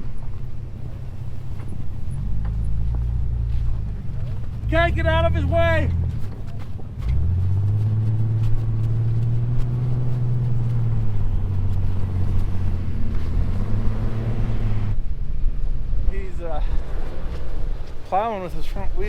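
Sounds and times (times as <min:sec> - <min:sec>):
vehicle engine pulling under load: 0:00.6 - 0:15.0.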